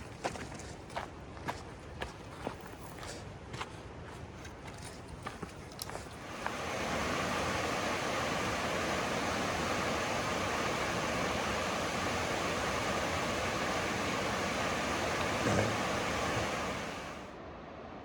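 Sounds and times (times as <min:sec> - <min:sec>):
footsteps crunching on rocks: 0:00.0 - 0:06.2
creek water rushing: 0:05.8 - 0:17.4.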